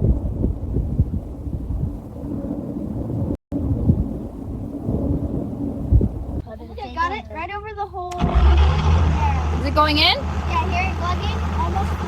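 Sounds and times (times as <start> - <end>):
heavy machinery rumbling: 8.2 - 12.0.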